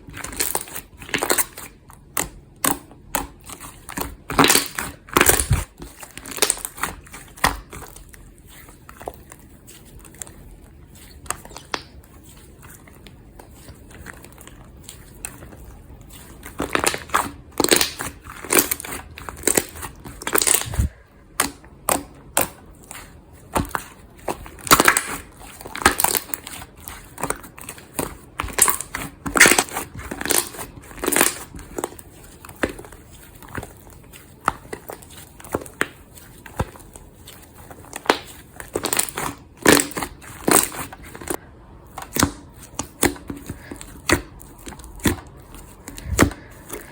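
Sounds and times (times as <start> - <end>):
crackly pops and squelches: 23.5 - 36.9.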